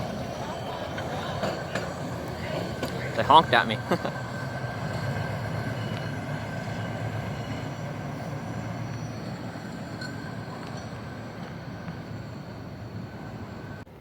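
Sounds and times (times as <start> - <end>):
truck rumbling on rails: 0.0 - 14.0
wheels humming: 0.0 - 14.0.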